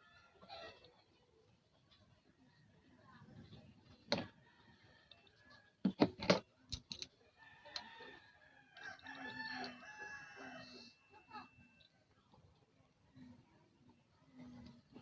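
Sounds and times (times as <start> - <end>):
rooster crowing: 7.4 - 10.9.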